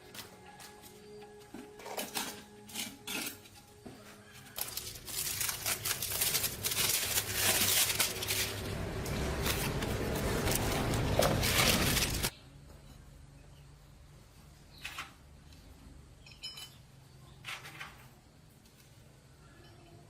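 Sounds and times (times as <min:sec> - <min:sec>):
rough scraping: 0:04.5 - 0:12.3.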